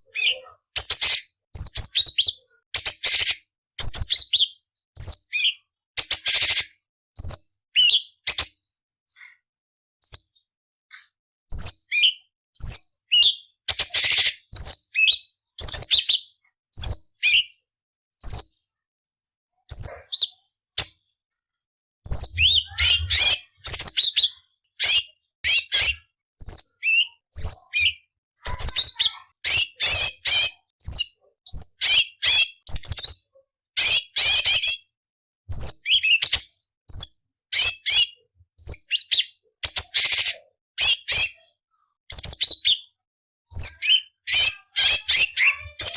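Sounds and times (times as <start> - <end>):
bird rasping chatters: 22.1 - 24.2
bird whistled notes: 22.1 - 28.0.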